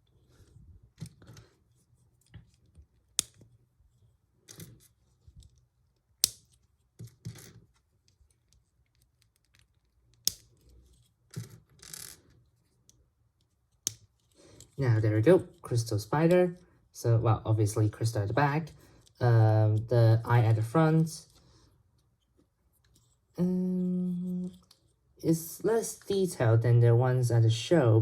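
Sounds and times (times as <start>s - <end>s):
rustling of plastic parts: 0.0s - 14.8s
plastic bricks snapping together: 6.2s - 6.5s.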